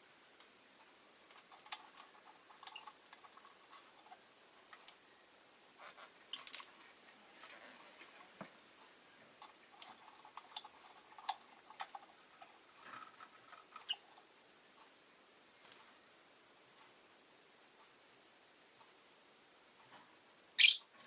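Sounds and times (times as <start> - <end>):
faint clicks and ticks: 0.4 - 16.0
lovebird chirps: 20.6 - 20.9.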